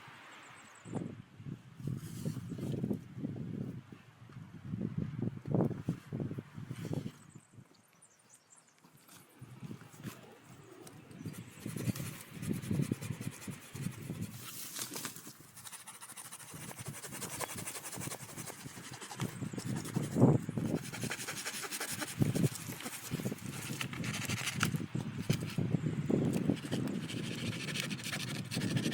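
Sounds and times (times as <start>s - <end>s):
rustling and crunching: 14.2s - 25.7s.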